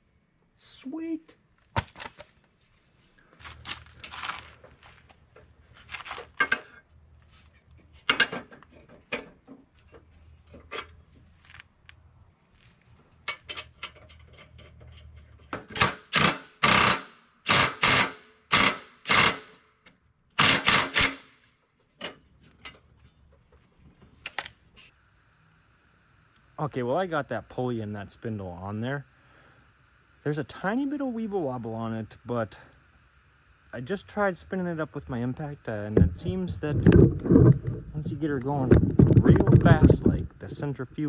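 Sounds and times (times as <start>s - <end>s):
impact driver bursts: 15.6s - 19.6s, 20.4s - 21.4s.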